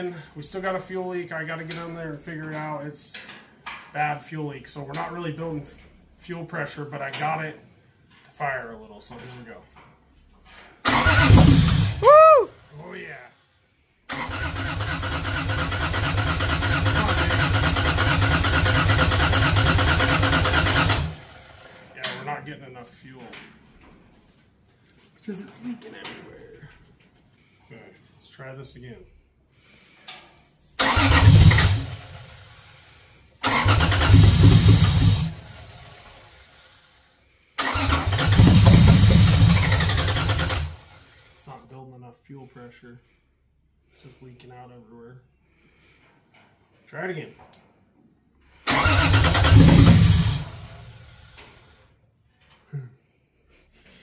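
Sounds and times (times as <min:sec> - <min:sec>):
engine cranking and chugging: 0:10.8 - 0:12.0, 0:14.1 - 0:21.8, 0:30.8 - 0:32.8, 0:33.4 - 0:36.5, 0:37.6 - 0:41.2, 0:48.6 - 0:51.7.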